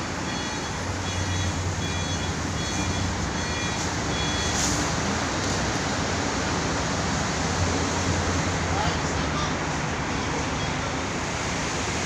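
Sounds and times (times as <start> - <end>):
truck reversing alarm beeping: 0.0 - 5.1.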